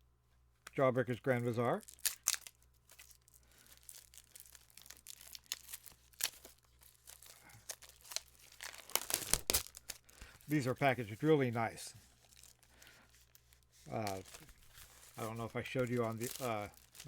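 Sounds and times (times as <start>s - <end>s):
plastic and cardboard tearing: 1.8s - 10.6s, 12.2s - 17.0s.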